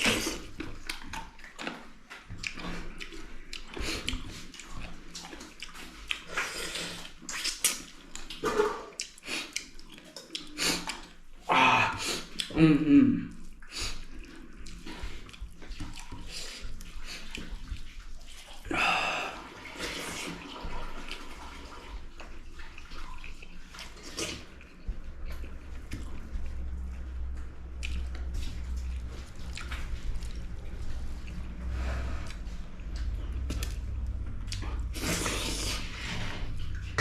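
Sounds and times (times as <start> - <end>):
wet chewing: 0.0 - 12.6, 13.3 - 18.7, 19.9 - 37.0
lip smacking: 2.4 - 11.2, 12.0 - 12.6.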